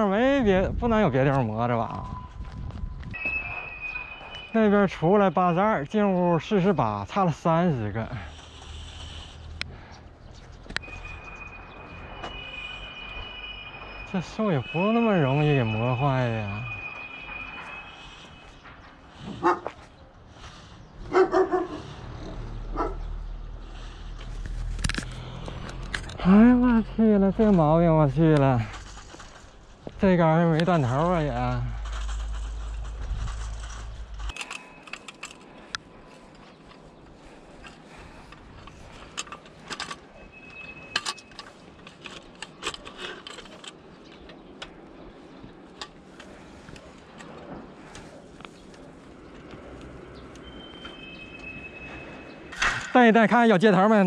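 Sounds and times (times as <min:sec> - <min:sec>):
steady high tone: 0:01.7 - 0:06.8, 0:10.8 - 0:19.1, 0:50.4 - 0:52.6
dog barking: 0:19.4 - 0:19.8, 0:21.1 - 0:21.9, 0:22.7 - 0:23.1
clicks and clinks of hard objects: 0:31.7 - 0:36.9, 0:37.5 - 0:44.8.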